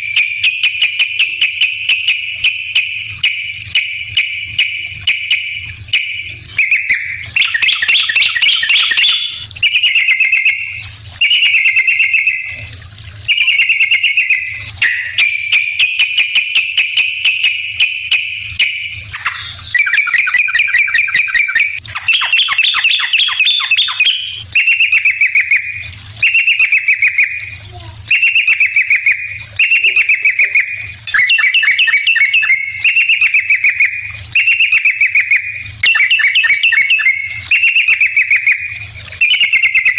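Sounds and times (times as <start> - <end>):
bird chattering trills: 6.6 - 12.5, 18.6 - 27.3, 28.1 - 38.6.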